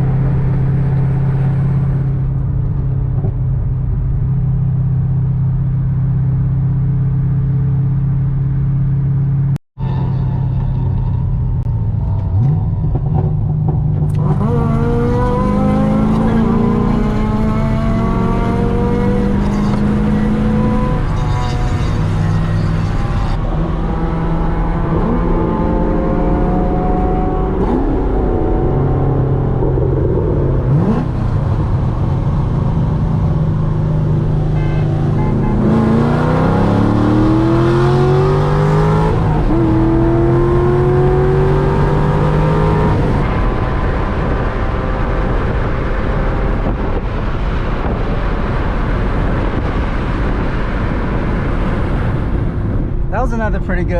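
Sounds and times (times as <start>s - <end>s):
low rumble: 0.0s - 15.0s, 26.4s - 36.3s
car engine revving through gears: 12.2s - 52.3s.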